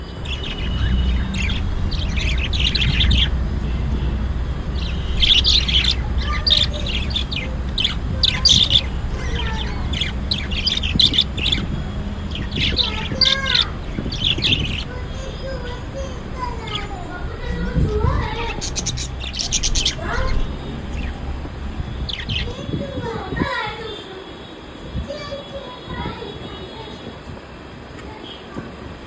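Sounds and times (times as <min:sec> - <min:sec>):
low hum: 0:00.0 - 0:22.6
budgerigars chirping: 0:00.0 - 0:22.8.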